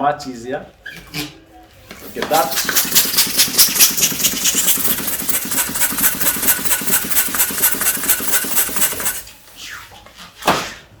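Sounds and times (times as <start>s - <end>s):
balloon pump pulsing whoosh: 2.4s - 9.3s.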